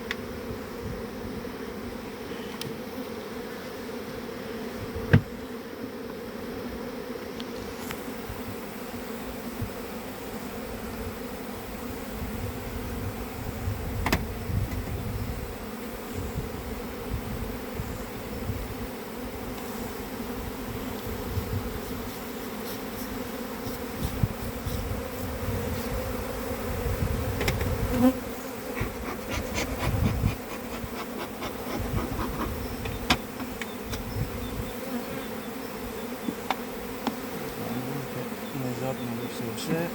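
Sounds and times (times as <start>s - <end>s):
honeybees buzzing: 0.0s - 39.9s
sharp clicks and knocks: 27.4s - 27.7s, 28.8s - 34.1s.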